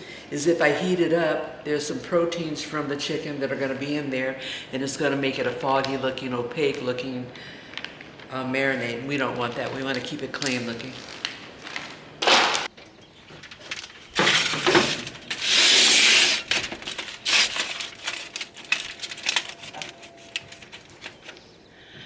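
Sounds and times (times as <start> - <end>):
rustling hissing bursts: 13.7 - 19.2.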